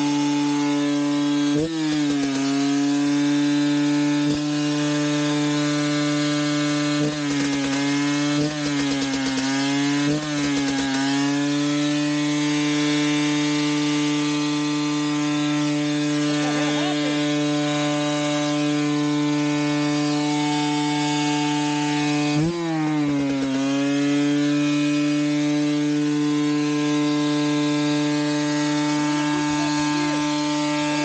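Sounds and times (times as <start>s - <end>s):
dirt bike engine revving high: 0.0s - 31.0s.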